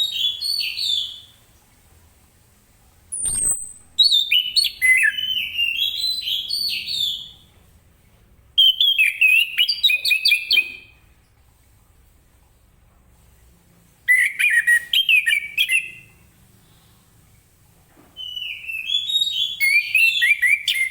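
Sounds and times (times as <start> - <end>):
thrush whistled song: 0.0 - 1.4, 3.1 - 7.4, 8.6 - 11.0, 14.1 - 16.2, 18.2 - 20.9.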